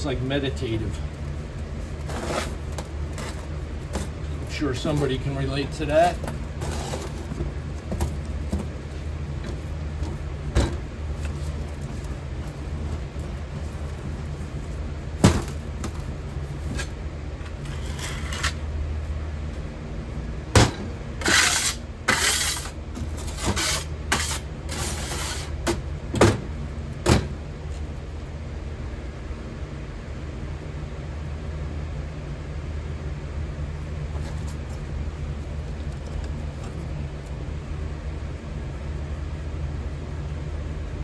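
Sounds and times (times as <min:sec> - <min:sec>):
low machine hum: 0:00.0 - 0:41.0
scraping hisses of hand work: 0:21.2 - 0:25.6.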